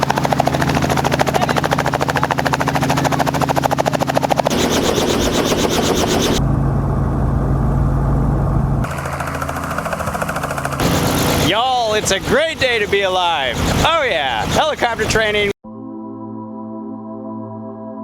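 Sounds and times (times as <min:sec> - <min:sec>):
low engine hum: 0:00.0 - 0:15.5
helicopter rotor chop: 0:00.0 - 0:15.6.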